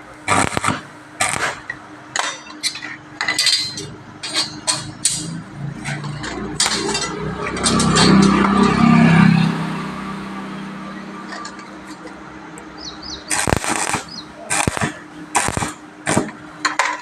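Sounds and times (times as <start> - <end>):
hammer striking steel bars: 0.3 - 9.0, 13.3 - 17.0.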